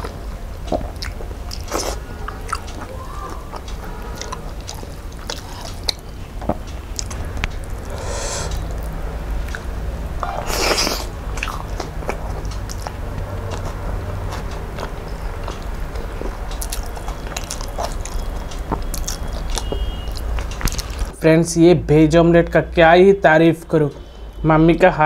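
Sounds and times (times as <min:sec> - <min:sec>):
person chewing: 0:00.7 - 0:06.0, 0:09.5 - 0:21.1
loud noisy bursts: 0:07.9 - 0:08.7
wet mouth clicks and smacks: 0:16.6 - 0:21.1.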